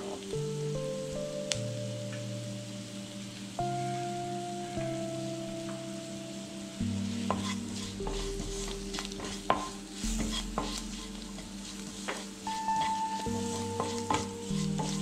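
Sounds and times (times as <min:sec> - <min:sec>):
vegetables sizzling in hot oil: 0:00.0 - 0:15.0
spatula scraping a wok: 0:07.0 - 0:15.0.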